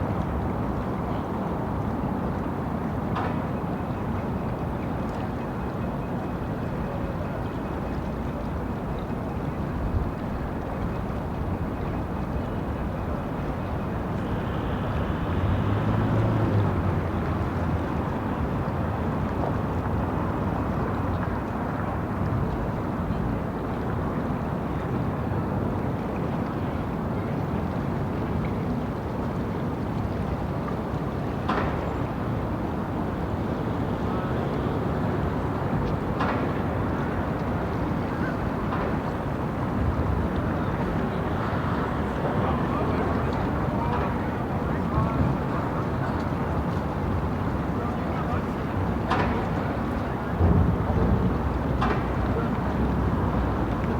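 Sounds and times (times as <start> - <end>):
traffic noise: 9.8 - 24.2, 26.9 - 53.9
low engine hum: 12.8 - 20.2.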